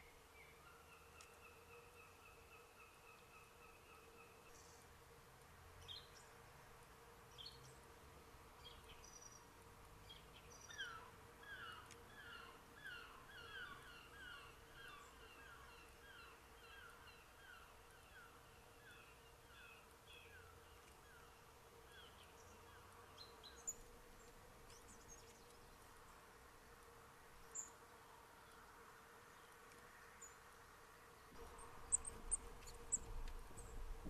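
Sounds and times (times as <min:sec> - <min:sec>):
faint steady hum: 0:00.0 - 0:34.0
bird calls and chirps: 0:10.1 - 0:25.7, 0:31.4 - 0:33.8.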